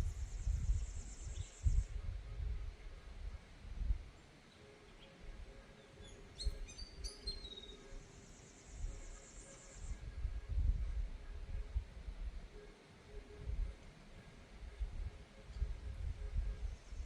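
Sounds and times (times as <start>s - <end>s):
wind rumbling on microphone: 0.0s - 4.2s, 5.2s - 7.5s, 8.7s - 17.0s
bird chirping and trilling: 5.8s - 7.9s.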